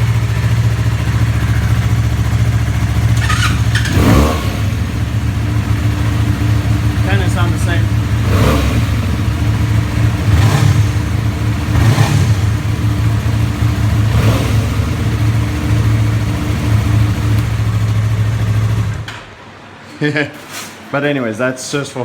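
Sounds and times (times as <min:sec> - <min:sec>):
motorcycle engine idling: 0:00.0 - 0:19.4.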